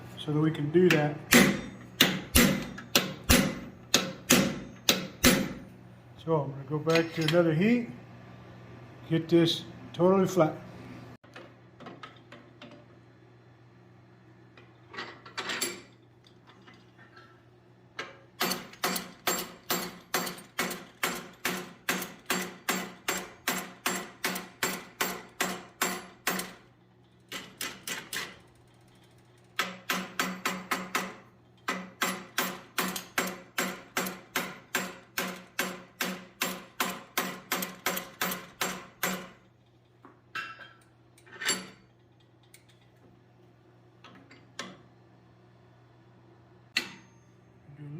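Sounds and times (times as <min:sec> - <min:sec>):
hammer striking hot steel: 0:00.9 - 0:05.7.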